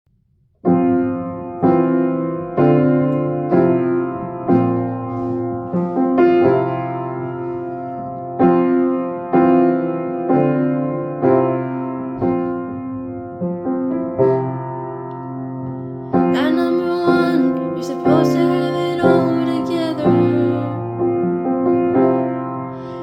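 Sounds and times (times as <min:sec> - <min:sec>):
piano playing slow chords: 0:00.5 - 0:23.0.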